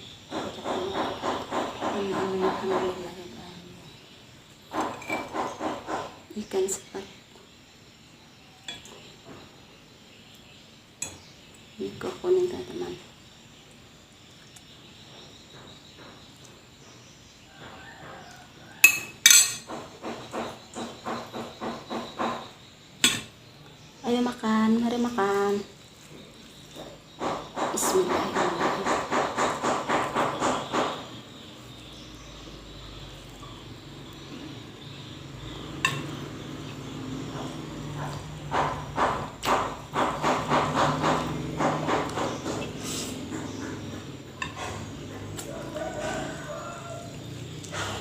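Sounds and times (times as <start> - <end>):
tableware clinking: 4.8 - 5.4, 18.8 - 19.8, 35.8 - 36.2.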